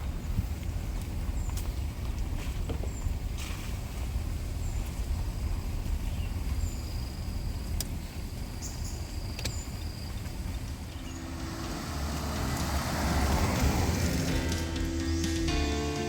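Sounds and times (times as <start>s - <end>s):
vehicle engine rumbling: 0.0s - 15.6s
music: 11.5s - 16.0s.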